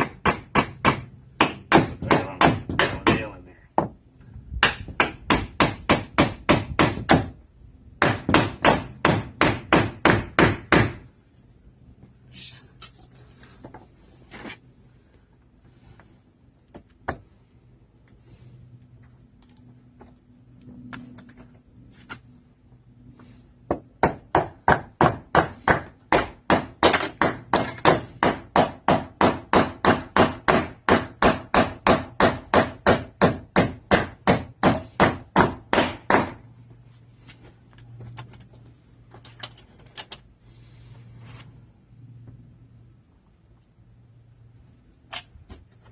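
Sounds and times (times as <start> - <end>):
hammer driving nails into wood: 0.0 - 3.2, 4.6 - 7.4, 8.0 - 11.0, 23.7 - 36.4.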